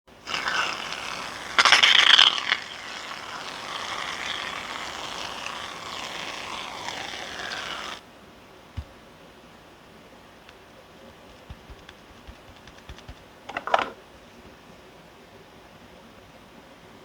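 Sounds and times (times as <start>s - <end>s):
slime squishing by hand: 11.1s - 13.4s.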